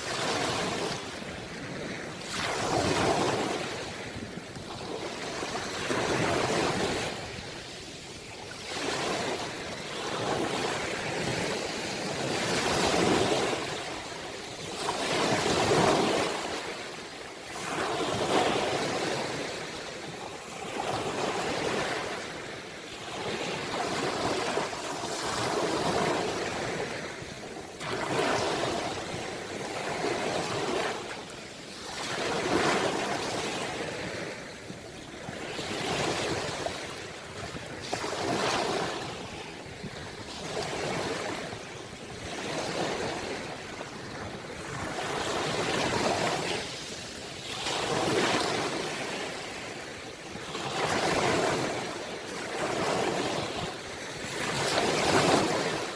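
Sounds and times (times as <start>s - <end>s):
ocean waves breaking on shore: 0.0s - 55.9s.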